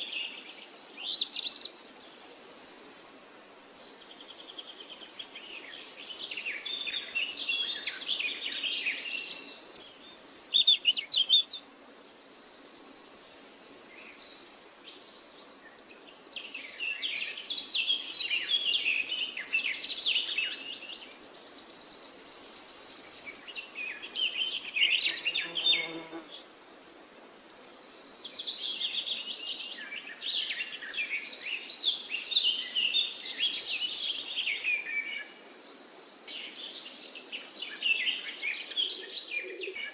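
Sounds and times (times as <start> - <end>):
small birds twittering: 0.0 - 26.5, 27.2 - 39.9
high insect-like buzz: 24.6 - 26.4.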